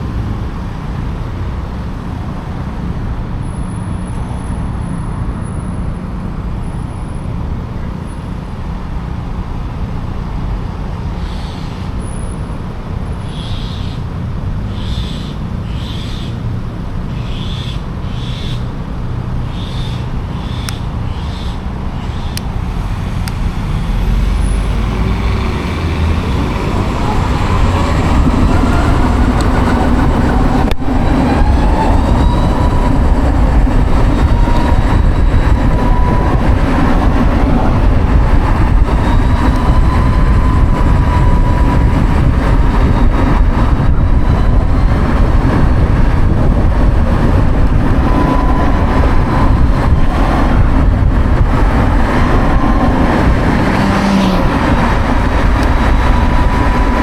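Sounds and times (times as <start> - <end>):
road rumble: 0.0 - 57.0
wind on microphone: 17.7 - 57.0.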